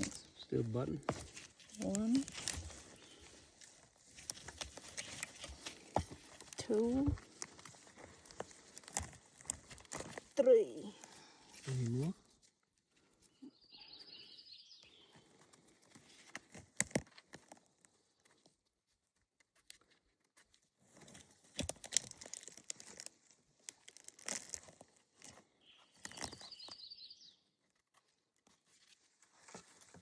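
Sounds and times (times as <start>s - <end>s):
rustling in dry leaf litter: 0.0s - 12.2s, 21.5s - 26.7s.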